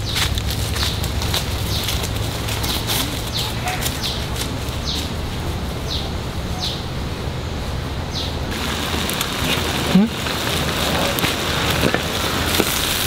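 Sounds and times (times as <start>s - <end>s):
footsteps rustling through undergrowth: 0.0s - 6.9s, 8.5s - 13.0s
outdoor background noise: 0.0s - 13.0s.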